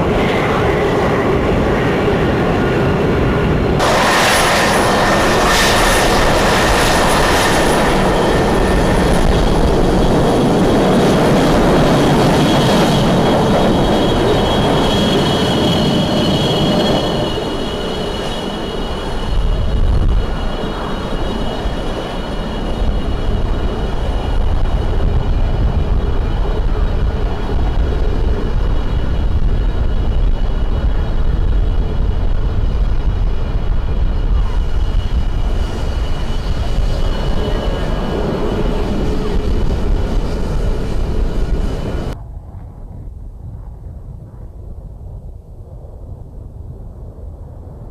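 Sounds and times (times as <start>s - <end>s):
jet engines with turbine whine: 0.0s - 47.9s
deep low rumble: 22.6s - 47.9s.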